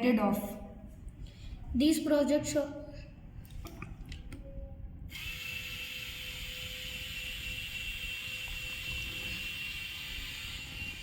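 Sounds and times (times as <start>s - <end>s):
small motor whirring: 5.1s - 11.0s.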